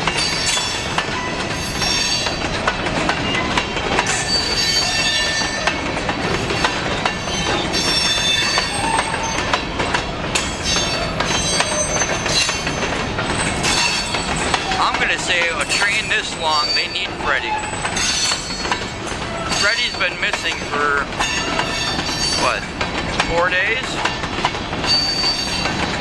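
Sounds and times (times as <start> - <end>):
high wheel squeal: 0.0 - 2.4, 4.1 - 5.8, 6.6 - 9.5, 10.4 - 14.8, 15.5 - 22.7, 24.8 - 25.8
train wheels clicking and clanking: 0.0 - 26.0.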